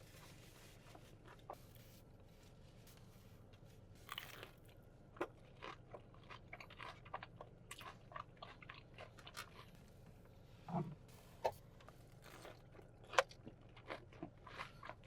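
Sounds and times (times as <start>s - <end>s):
person crunching fried chicken: 4.0s - 9.8s, 12.2s - 15.0s.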